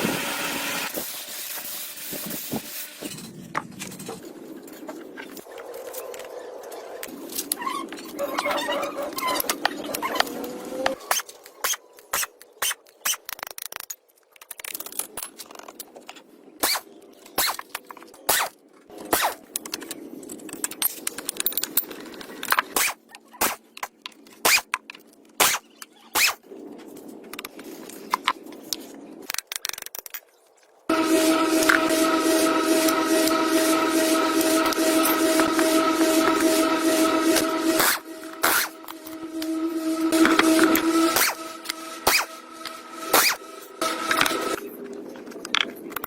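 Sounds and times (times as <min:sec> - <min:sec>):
loud machine whine: 0:00.0 - 0:01.1, 0:30.9 - 0:44.6.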